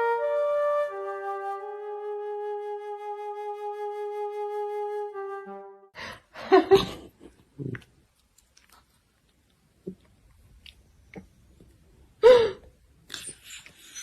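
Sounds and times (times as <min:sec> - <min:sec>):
flute-like note: 0:00.0 - 0:05.9.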